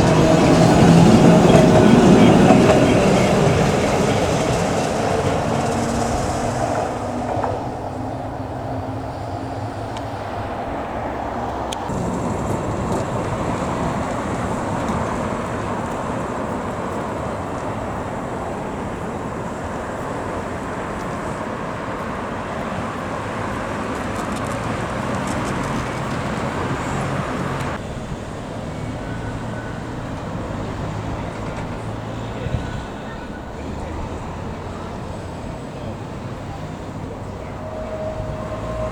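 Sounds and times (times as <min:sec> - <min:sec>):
vehicle rumble: 0:00.0 - 0:38.9
faint clicks: 0:22.0 - 0:27.8.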